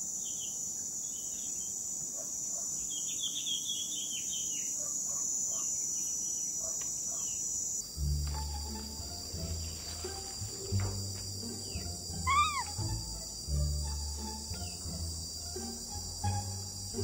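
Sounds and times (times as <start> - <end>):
insects droning: 0.0 - 17.0
background music with bass line: 8.0 - 17.0.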